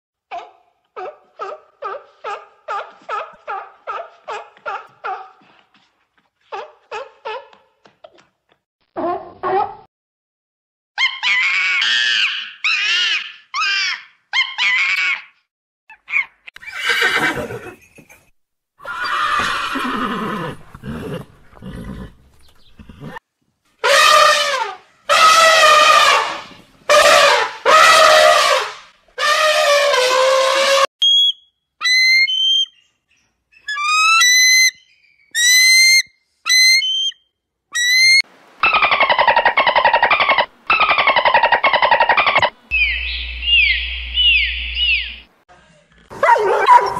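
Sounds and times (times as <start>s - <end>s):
macaques screeching: 11.0s - 15.3s, 31.8s - 32.6s, 33.6s - 34.8s, 35.4s - 37.1s, 37.8s - 45.2s
elephant trumpeting: 23.8s - 30.9s, 37.8s - 45.2s
bird of prey calling: 33.6s - 45.3s.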